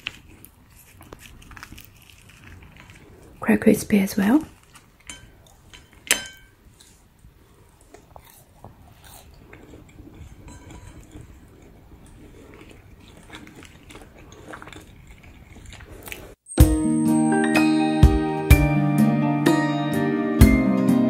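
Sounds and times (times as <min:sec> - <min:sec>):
chewing crispy pancake: 0:00.0 - 0:16.4.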